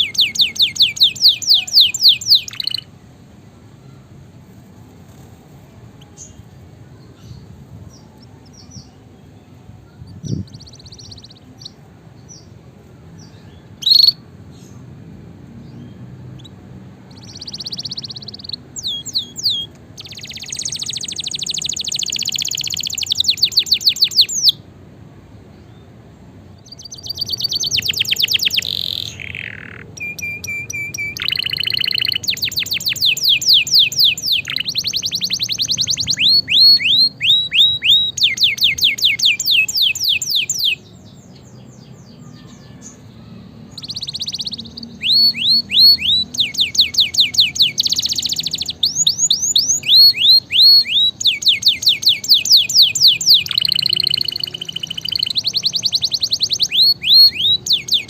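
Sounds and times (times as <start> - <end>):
canary singing trills: 0.0 - 14.9, 15.5 - 24.7, 25.5 - 58.0
low steady background hum: 0.0 - 58.0.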